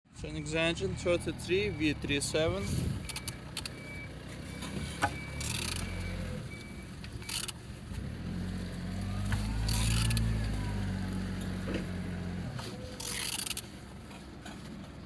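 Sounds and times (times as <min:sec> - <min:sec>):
engine turned over by hand: 0:04.6 - 0:08.4, 0:09.1 - 0:15.0
short mechanical clicks: 0:05.4 - 0:06.0, 0:07.2 - 0:07.6, 0:13.0 - 0:13.7.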